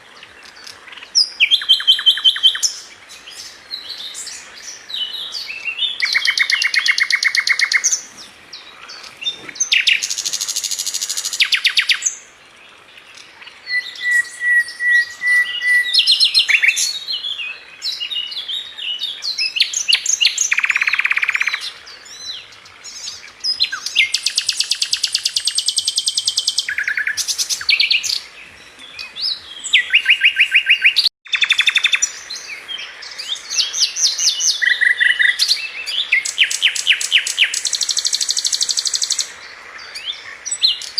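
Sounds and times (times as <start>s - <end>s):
bird singing trills and chirps: 0.0s - 12.4s, 13.0s - 40.9s
steady bird whistle: 13.7s - 16.9s.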